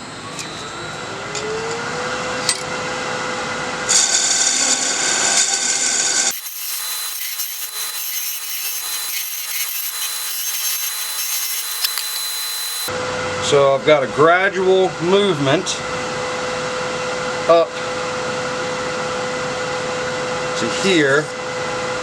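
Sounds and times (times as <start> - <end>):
wood lathe whine: 0.0 - 13.0
turning tool scraping wood: 6.3 - 12.9.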